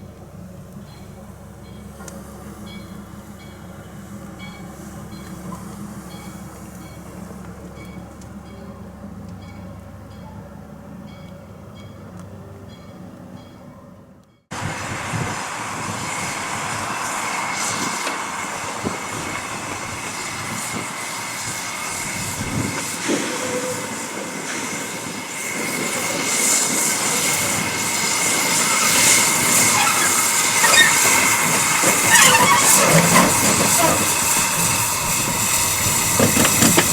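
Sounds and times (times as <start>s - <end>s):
train rolling on track: 0.0s - 36.9s
thin high squeal: 28.5s - 36.9s.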